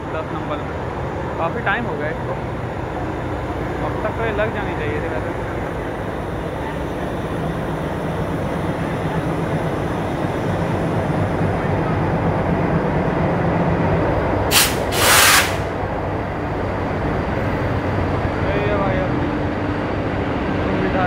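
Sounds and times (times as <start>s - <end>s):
train rumbling: 0.0s - 21.0s
air hisses: 14.5s - 15.8s.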